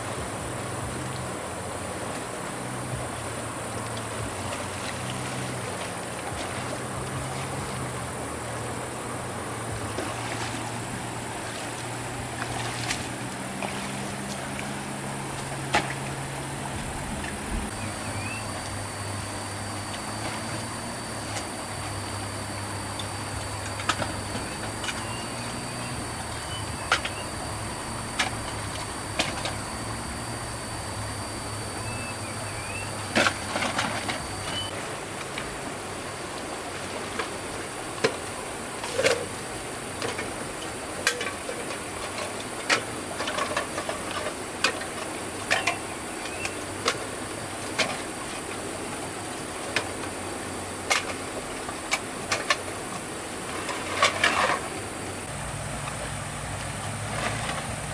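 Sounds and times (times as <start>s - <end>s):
low hum: 0.0s - 48.6s
steady high hiss: 0.0s - 57.9s
thin high tone: 17.7s - 34.8s.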